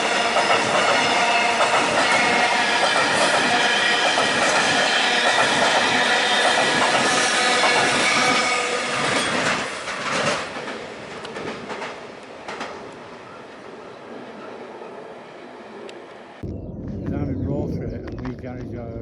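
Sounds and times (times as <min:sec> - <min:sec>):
train wheels squealing: 0:00.0 - 0:09.8.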